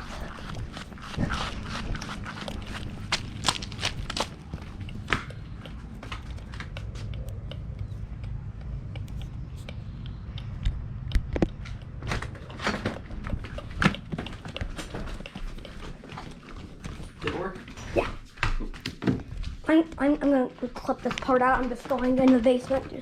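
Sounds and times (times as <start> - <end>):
air conditioner unit humming: 0.0 - 23.0
sharp clicks and knocks: 2.0 - 17.4.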